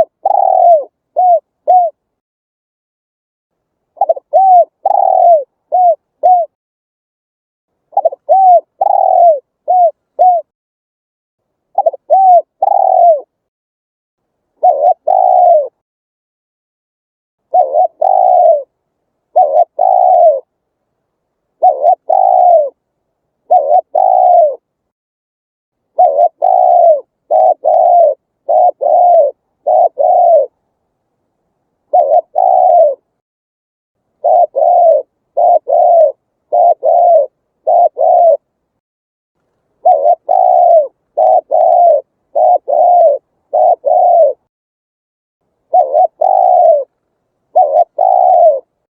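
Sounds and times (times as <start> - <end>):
dove cooing: 0.0 - 2.0, 4.0 - 6.6, 7.9 - 10.5, 11.8 - 13.4, 14.6 - 15.8, 17.5 - 20.5, 21.6 - 22.8, 23.4 - 24.7, 25.9 - 30.6, 31.9 - 33.2, 34.2 - 38.5, 39.8 - 44.5, 45.6 - 48.8.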